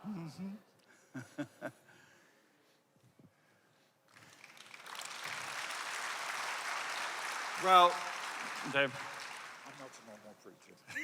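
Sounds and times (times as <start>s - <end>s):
audience applauding: 4.1s - 10.4s.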